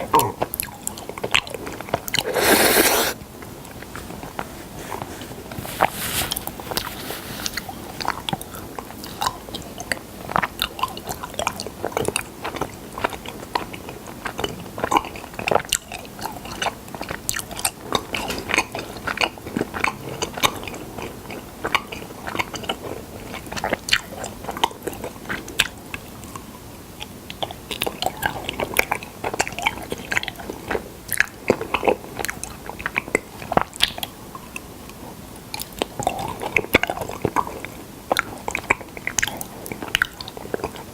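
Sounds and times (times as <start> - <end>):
person chewing honey: 0.0 - 3.2, 7.5 - 25.8
mouth clicks: 2.1 - 3.2.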